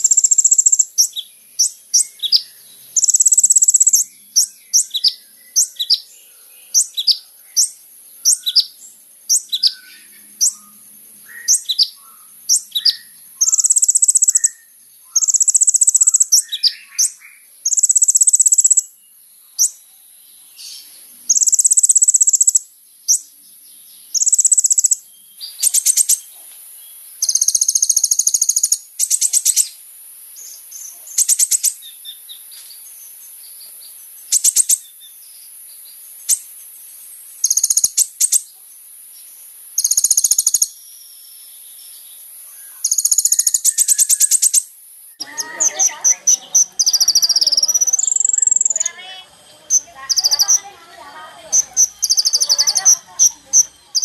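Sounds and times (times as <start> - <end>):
bird ticking calls: 0.0 - 6.0, 9.3 - 18.9, 21.3 - 23.3, 24.1 - 26.2, 27.2 - 29.7, 34.3 - 34.8, 37.4 - 38.4, 39.8 - 40.8, 42.7 - 54.0
bird singing buzzy trills: 0.0 - 54.0.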